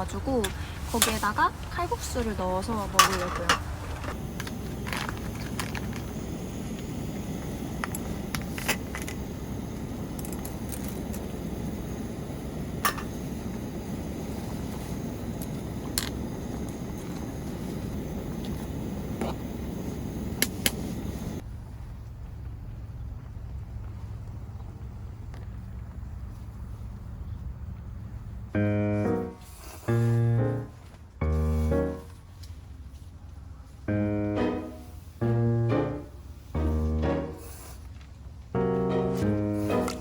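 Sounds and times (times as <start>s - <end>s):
cookware clinking: 2.8s - 4.2s, 12.9s - 13.2s.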